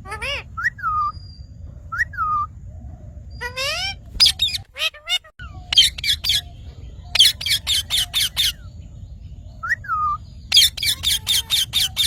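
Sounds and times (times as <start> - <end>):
parrot squawking: 0.0 - 1.1, 3.4 - 8.7, 9.9 - 12.0.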